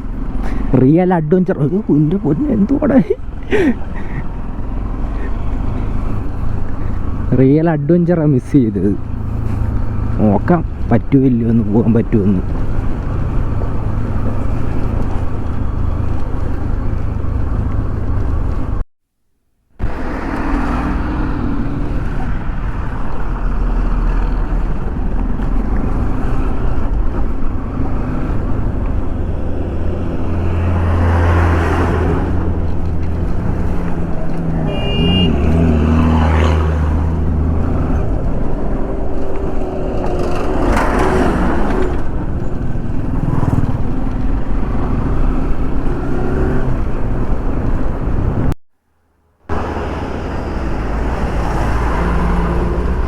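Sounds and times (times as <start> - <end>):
vehicle engine rumble: 0.0 - 18.8, 19.8 - 53.0
wind noise on microphone: 46.7 - 48.6.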